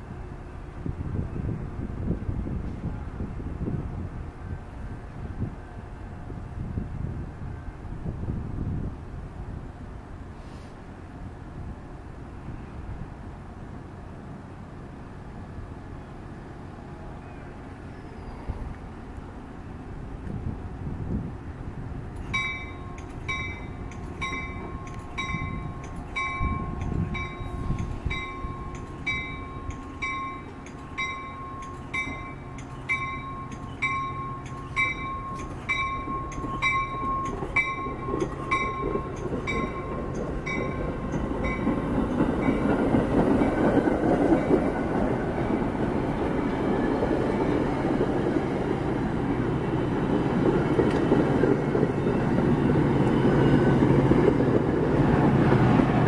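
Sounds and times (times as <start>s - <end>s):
train wheels rumbling on rails: 0.0s - 56.0s
warning bell ringing: 22.4s - 41.7s.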